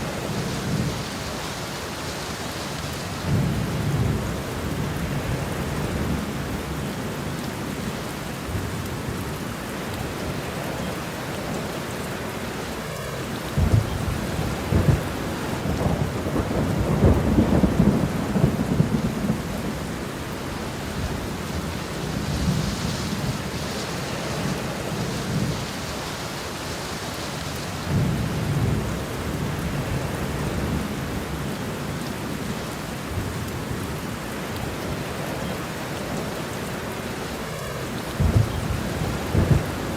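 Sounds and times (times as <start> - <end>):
steady rain: 0.0 - 39.9
rolling thunder: 13.0 - 31.5, 37.3 - 39.9.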